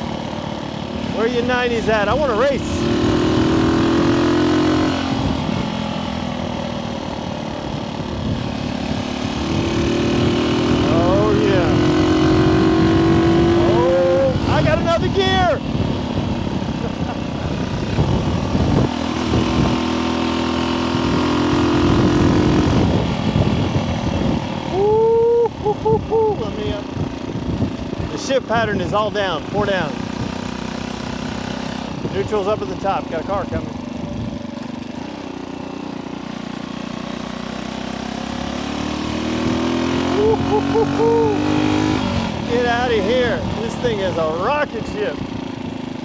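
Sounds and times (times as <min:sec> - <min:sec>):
motorcycle engine running: 0:00.0 - 0:46.0
wind rumbling on microphone: 0:07.6 - 0:20.1, 0:20.9 - 0:34.6.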